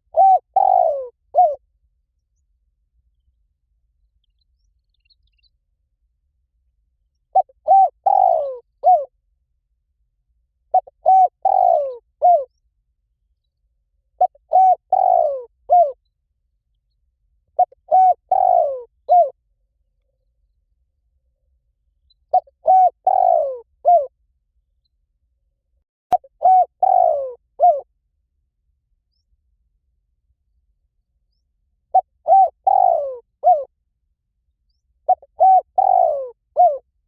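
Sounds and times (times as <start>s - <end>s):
dove cooing: 0.0s - 1.6s, 7.3s - 9.1s, 10.7s - 12.5s, 14.2s - 16.0s, 17.6s - 19.4s, 22.3s - 24.1s, 26.1s - 27.9s, 31.9s - 33.7s, 35.1s - 36.9s.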